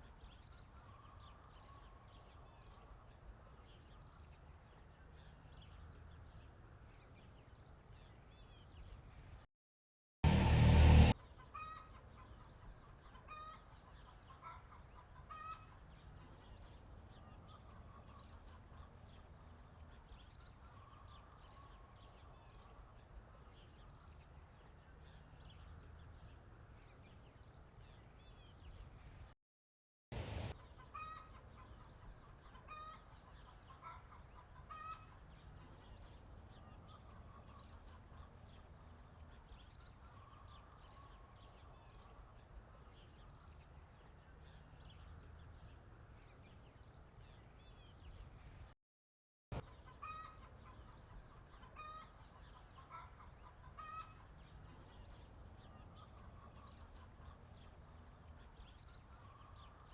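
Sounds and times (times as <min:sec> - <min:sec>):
brief loud noise: 0:10.2 - 0:11.2
chickens clucking: 0:30.6 - 0:35.9, 0:49.6 - 0:54.9.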